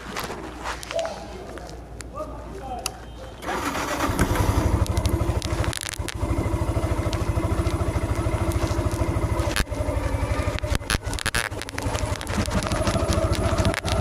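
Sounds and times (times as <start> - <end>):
sharp clicks: 2.8 - 14.0
motorcycle engine putter: 3.4 - 14.0.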